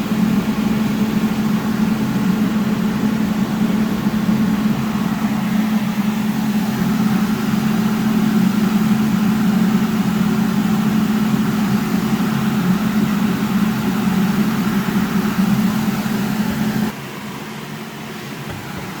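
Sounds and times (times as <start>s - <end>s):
electric fan humming: 0.0s - 19.0s.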